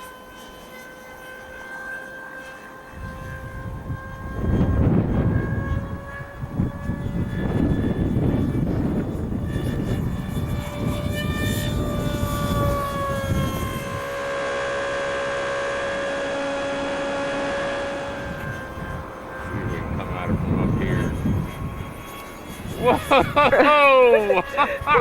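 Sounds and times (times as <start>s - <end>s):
model jet motor whining: 0.0s - 25.0s
wind buffeting microphone: 2.9s - 14.4s, 17.6s - 25.0s.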